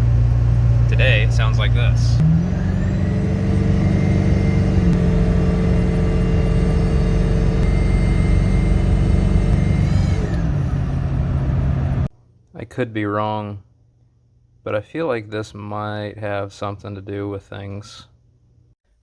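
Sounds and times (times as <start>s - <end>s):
diesel engine at raised revs: 0.0s - 12.1s
high-pitched turbo whine: 0.0s - 12.1s.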